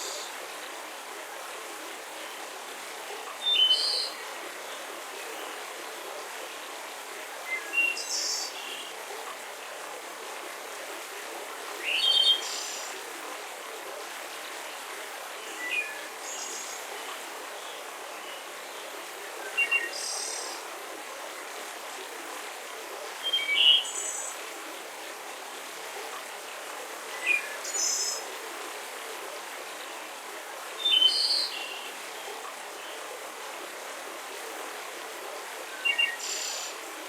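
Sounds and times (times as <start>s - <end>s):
steady background hiss: 0.0s - 37.0s.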